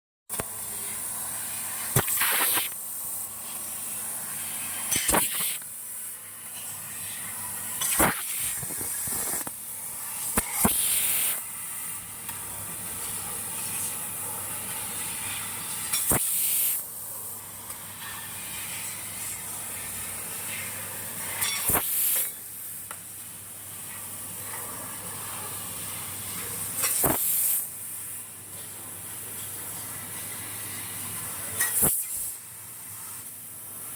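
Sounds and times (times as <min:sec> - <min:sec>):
gas hissing from laser cutter: 0:00.4 - 0:17.4, 0:18.0 - 0:22.8, 0:26.7 - 0:28.2, 0:30.1 - 0:32.4.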